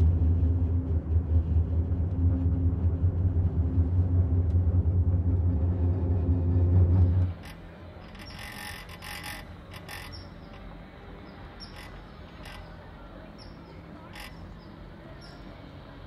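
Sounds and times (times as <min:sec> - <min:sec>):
small birds chirping: 0:08.1 - 0:16.0.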